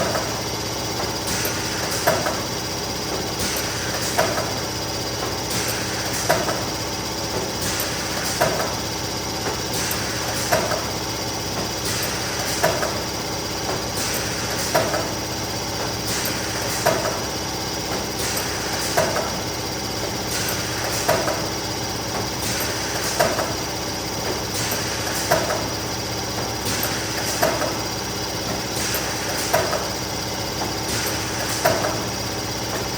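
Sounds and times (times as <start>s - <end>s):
laminating machine hum: 0.0s - 32.9s
sharp machine knocks: 3.1s - 4.6s, 7.3s - 8.8s, 9.4s - 15.2s, 15.8s - 25.8s, 26.4s - 30.0s, 30.6s - 32.9s.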